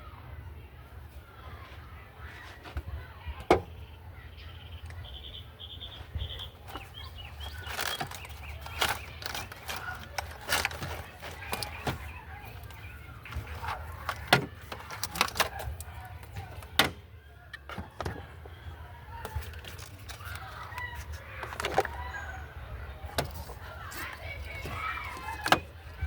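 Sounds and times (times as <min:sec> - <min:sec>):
birds chirping: 0:00.0 - 0:26.0
clicks and knocks of car parts: 0:02.7 - 0:03.8, 0:06.4 - 0:22.4, 0:23.0 - 0:26.0.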